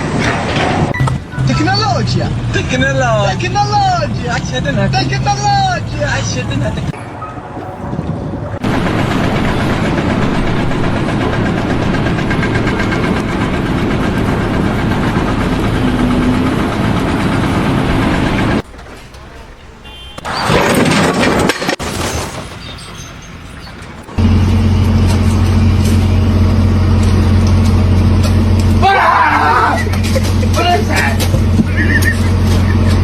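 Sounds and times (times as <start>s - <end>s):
motor running loudly: 7.4s - 18.6s, 24.2s - 28.9s.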